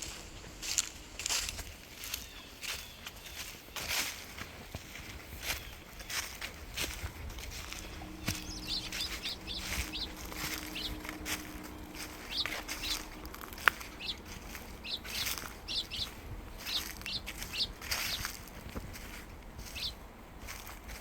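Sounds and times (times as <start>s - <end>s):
footsteps on leaves: 0.0s - 21.0s
small birds chirping: 0.0s - 21.0s
faint low hum: 4.7s - 21.0s.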